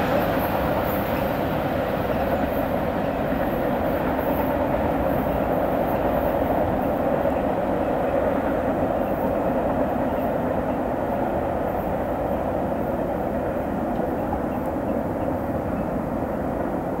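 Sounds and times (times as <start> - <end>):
train wheels rolling on rails: 0.0 - 17.0.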